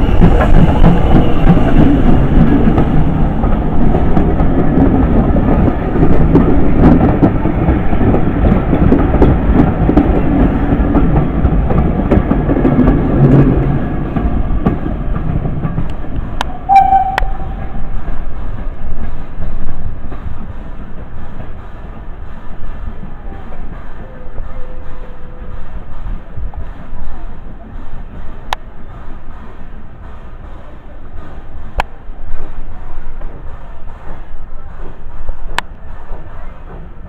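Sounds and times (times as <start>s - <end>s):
train rumbling past: 0.0s - 37.0s
short high tone: 16.5s - 18.0s.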